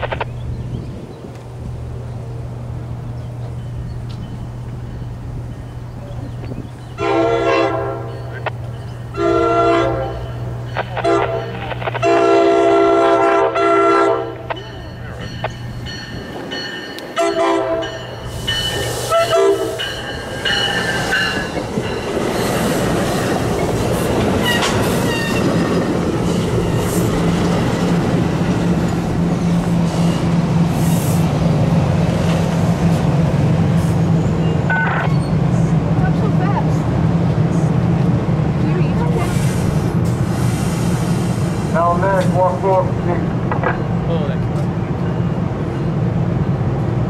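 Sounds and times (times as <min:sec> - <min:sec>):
train rumbling past: 0:00.0 - 0:47.0
train horn: 0:07.0 - 0:08.2, 0:09.1 - 0:10.3, 0:11.0 - 0:14.4, 0:17.2 - 0:18.1, 0:19.1 - 0:19.9.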